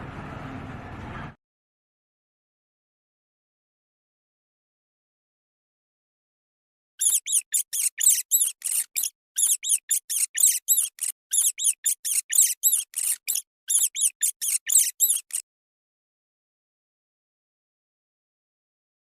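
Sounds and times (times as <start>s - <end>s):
animal squeaky chirps: 7.0s - 15.4s.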